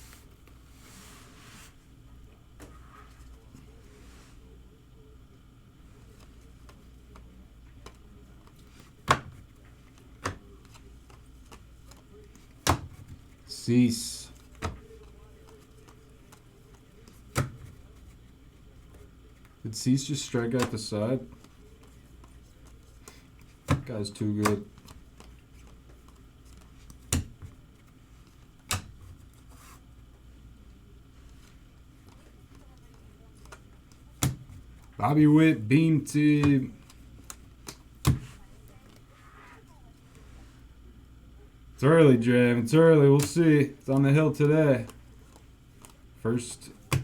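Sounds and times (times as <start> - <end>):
cards tapping on tabletop: 37.3 - 38.4.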